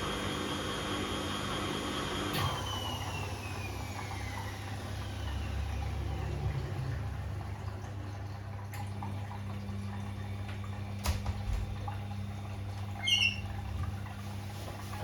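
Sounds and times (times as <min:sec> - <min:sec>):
washing machine humming: 0:00.0 - 0:15.0
high squeak: 0:13.0 - 0:13.6.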